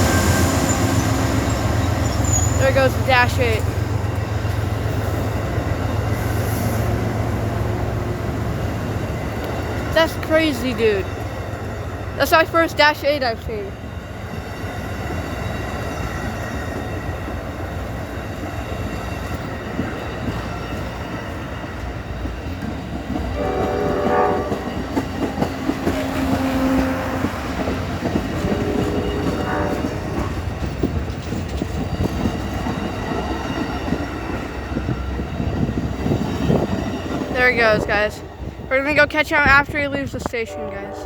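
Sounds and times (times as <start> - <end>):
train wheels on rails: 0.0 - 41.0
train horn: 23.3 - 25.0, 25.8 - 30.4, 37.4 - 38.3, 40.4 - 41.0.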